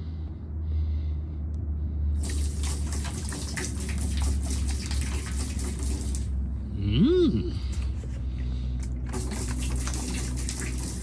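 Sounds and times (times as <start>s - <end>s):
liquid pouring: 2.2s - 6.3s, 9.0s - 11.0s.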